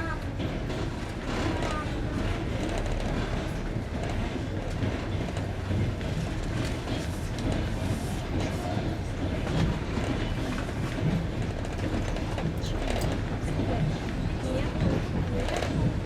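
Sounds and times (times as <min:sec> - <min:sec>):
train rolling rumble: 0:00.0 - 0:16.0
wheels clacking on rail joints: 0:00.0 - 0:16.0.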